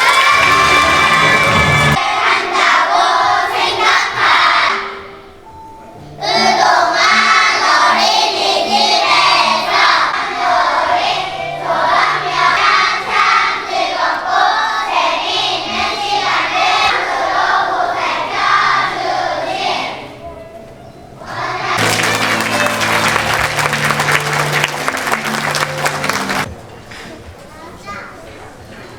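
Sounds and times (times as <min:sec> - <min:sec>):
children singing together: 0:00.0 - 0:05.3, 0:06.2 - 0:20.2, 0:21.2 - 0:23.2
musical accompaniment with bass line: 0:00.2 - 0:02.0, 0:21.4 - 0:26.5.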